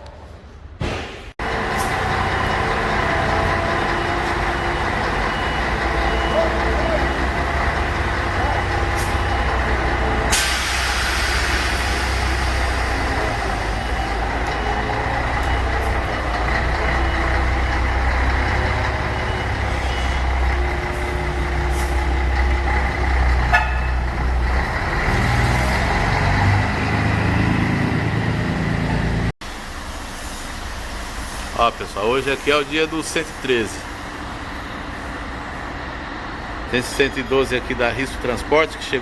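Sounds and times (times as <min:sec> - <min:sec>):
truck diesel engine running: 0:01.4 - 0:29.4
air release hiss: 0:10.3 - 0:13.1.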